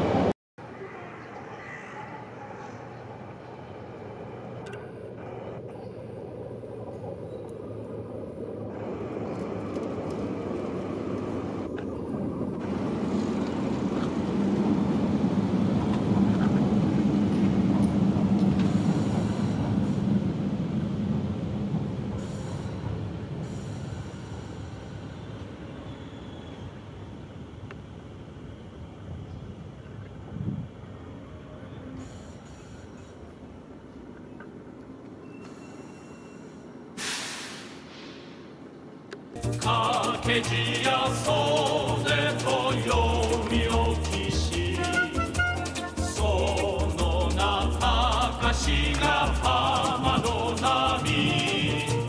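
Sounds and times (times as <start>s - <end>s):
electric train rumbling past: 0.0s - 52.0s.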